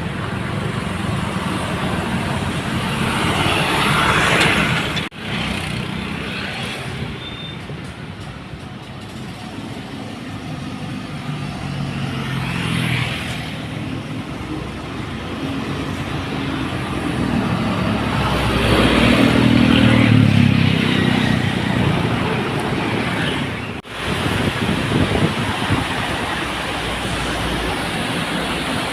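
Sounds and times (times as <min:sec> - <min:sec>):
tyre noise on wet road: 0:00.0 - 0:08.5, 0:09.1 - 0:28.9
diesel truck engine passing: 0:09.7 - 0:28.9.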